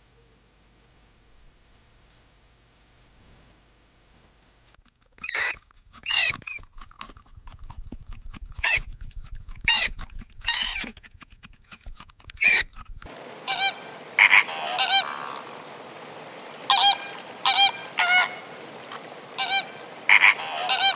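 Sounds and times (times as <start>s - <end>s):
bird honking: 13.5s - 20.9s
fowl harsh calls: 13.5s - 20.9s.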